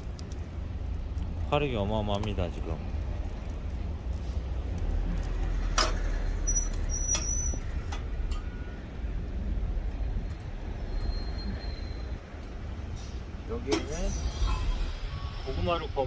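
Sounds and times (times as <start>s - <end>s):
wood fire rumble in stove: 0.0s - 8.4s
burning wood crackles and pops: 0.0s - 14.2s.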